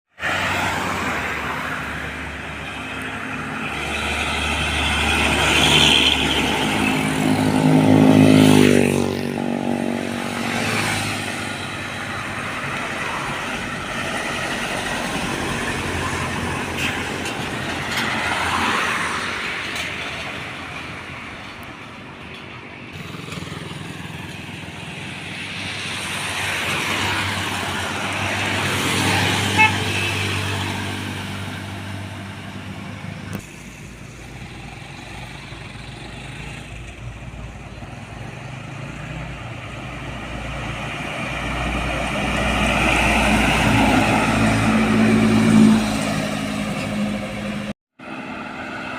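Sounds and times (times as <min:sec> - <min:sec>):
trucks and traffic passing: 0:00.1 - 0:48.9.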